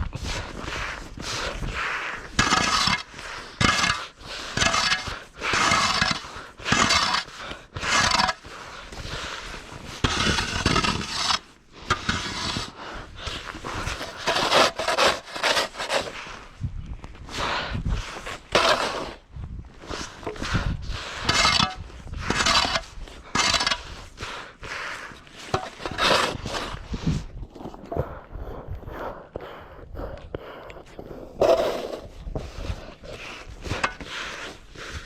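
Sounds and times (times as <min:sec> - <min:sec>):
snow shovel scraping snow: 0:00.3 - 0:16.4, 0:18.1 - 0:19.2, 0:19.9 - 0:24.1, 0:25.3 - 0:27.0.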